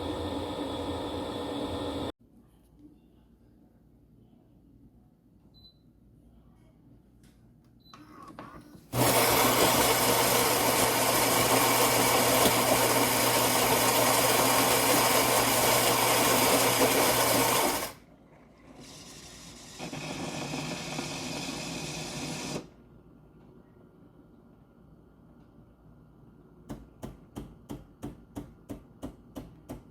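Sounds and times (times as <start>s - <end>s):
espresso machine running: 0.0s - 2.1s, 9.0s - 18.0s, 19.6s - 22.6s.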